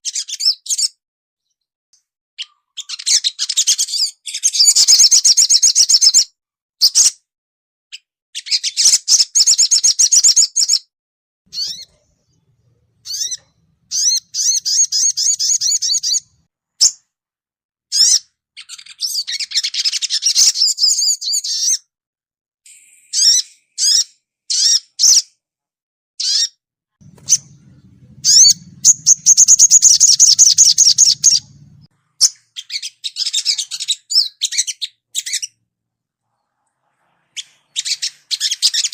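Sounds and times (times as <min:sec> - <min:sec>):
faint low hum: 0:11.5 - 0:16.5, 0:27.0 - 0:31.9
bird twittering trills and chirps: 0:11.5 - 0:17.0, 0:22.7 - 0:25.2, 0:26.2 - 0:35.6.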